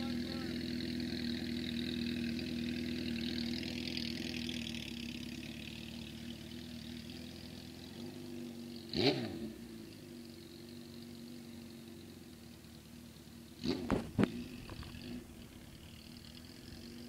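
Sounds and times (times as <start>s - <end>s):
motorcycle engine running: 0.0s - 17.0s
motorcycle engine quick rev: 13.6s - 15.2s.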